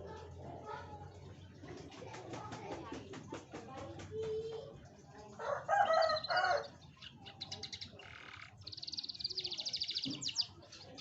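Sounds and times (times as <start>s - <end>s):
canary singing trills: 5.4s - 11.0s.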